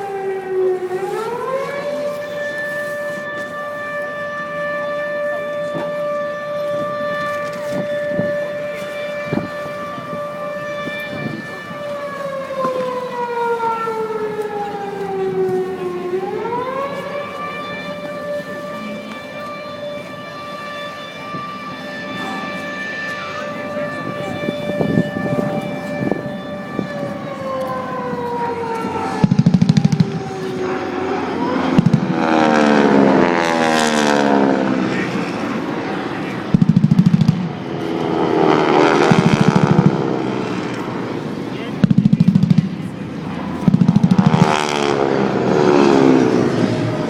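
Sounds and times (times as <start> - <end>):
air-raid siren wailing: 0.0 - 47.0
propeller aircraft flying past: 22.0 - 47.0.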